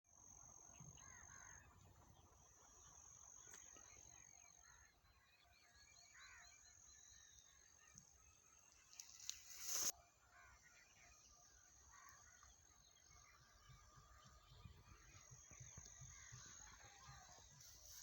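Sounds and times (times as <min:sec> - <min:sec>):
faint birds chirping: 0:00.1 - 0:18.0.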